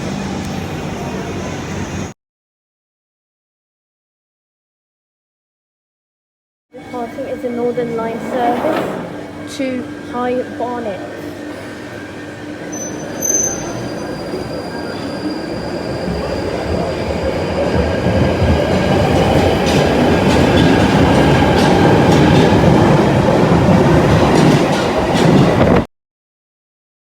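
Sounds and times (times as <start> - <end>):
train pulling out rumbling: 0.0 - 2.2, 6.8 - 25.9.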